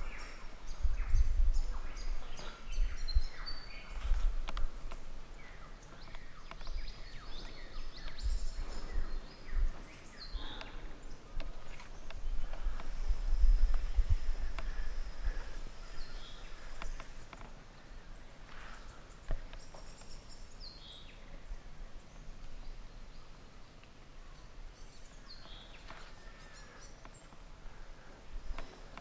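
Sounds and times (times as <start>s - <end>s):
faint low rumble: 0.0s - 19.4s.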